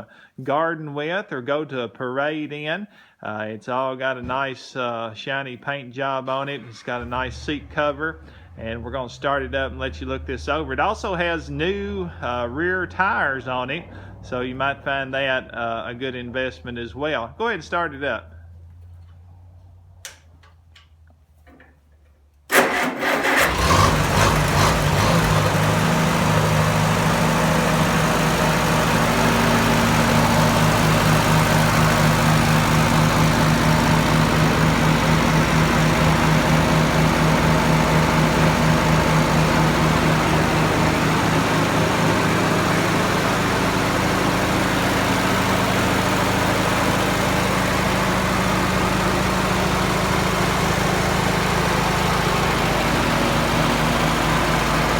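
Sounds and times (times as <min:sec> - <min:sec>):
tractor engine starting: 0:06.0 - 0:17.2, 0:22.5 - 0:54.9
tractor engine idling: 0:06.0 - 0:21.8, 0:22.5 - 0:54.9.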